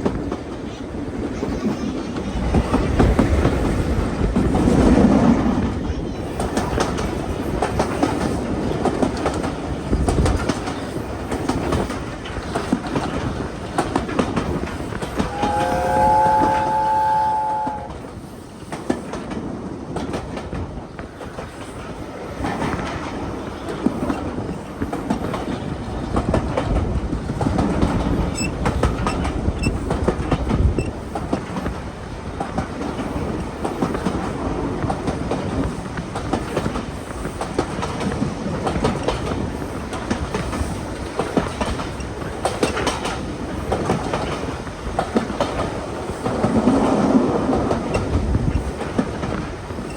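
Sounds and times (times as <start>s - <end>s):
train wheels clicking over rail joints: 0.0s - 17.9s, 18.6s - 49.9s
steam locomotive chime whistle: 15.0s - 18.0s.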